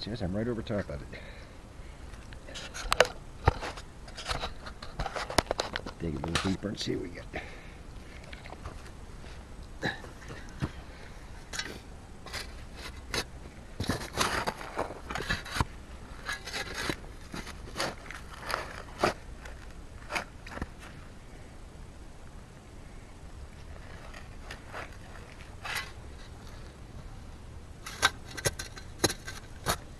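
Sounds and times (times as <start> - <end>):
hand tool digging in soil: 11.4 - 21.0, 27.8 - 29.9.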